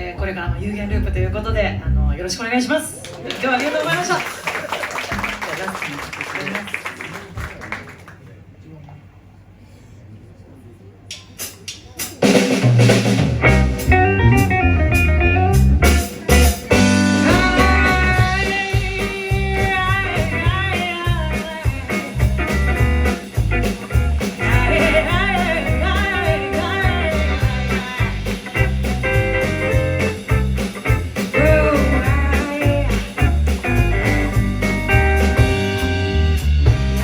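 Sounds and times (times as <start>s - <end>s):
live blues band playing: 0.0s - 2.6s, 11.4s - 37.0s.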